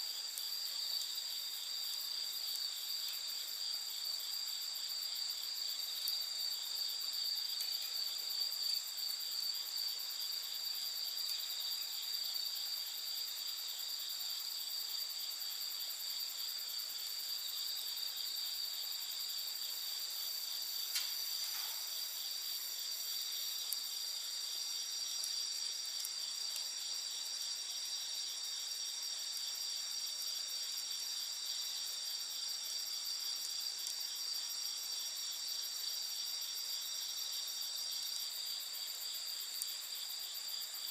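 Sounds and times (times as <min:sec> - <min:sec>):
crickets chirping: 0:00.0 - 0:40.9
wood fire pops: 0:20.8 - 0:22.4.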